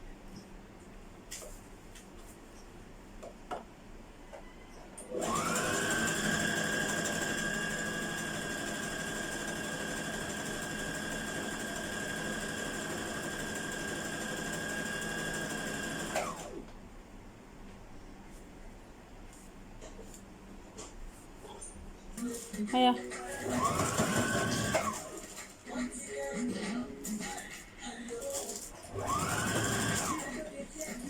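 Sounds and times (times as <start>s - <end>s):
sewing machine motor whine: 5.1s - 16.6s, 23.4s - 25.4s, 28.8s - 30.5s.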